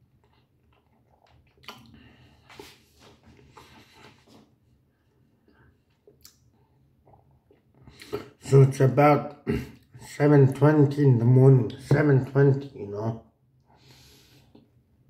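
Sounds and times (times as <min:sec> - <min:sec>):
chewing and mouth sounds: 0:00.0 - 0:02.8, 0:05.9 - 0:08.4.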